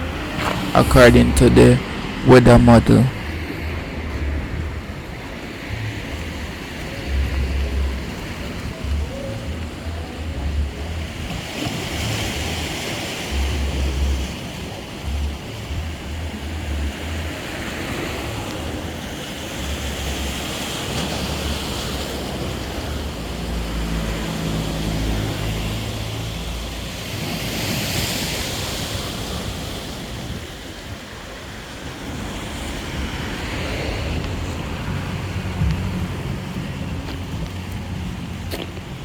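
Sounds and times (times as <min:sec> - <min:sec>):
sea waves washing ashore: 0:00.0 - 0:39.0
wind rumbling on microphone: 0:28.9 - 0:39.0.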